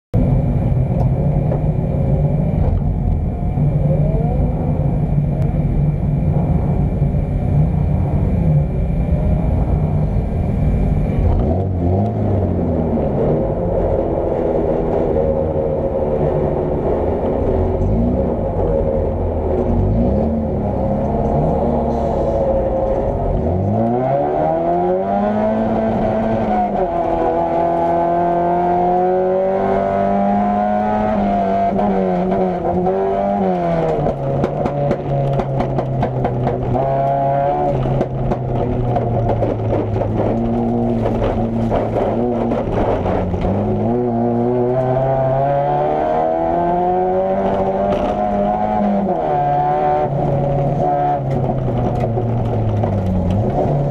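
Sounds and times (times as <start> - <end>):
car engine revving: 0.2 - 53.9
sharp knocks and rattles: 34.0 - 36.9, 37.8 - 43.5.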